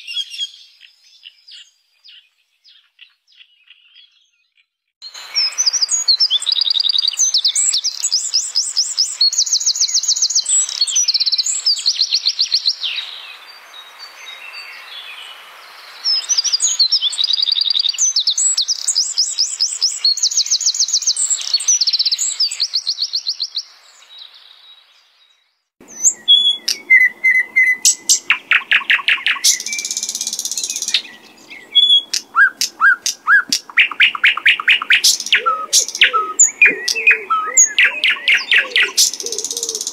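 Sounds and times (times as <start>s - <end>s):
songbird singing trills: 0.0s - 15.1s, 16.0s - 39.9s
lower whistled bird notes: 25.8s - 39.9s.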